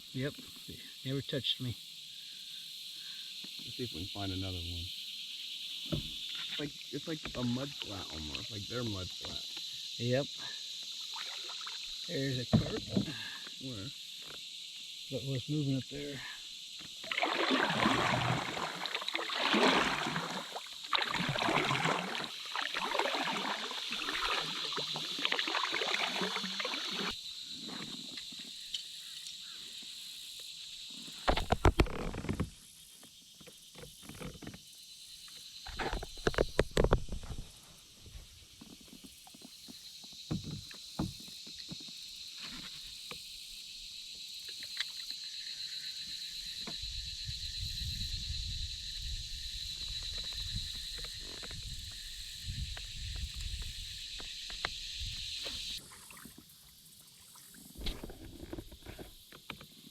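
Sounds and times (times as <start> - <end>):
paddle splashing through water: 11.1 - 13.3, 16.8 - 27.2, 55.4 - 59.1.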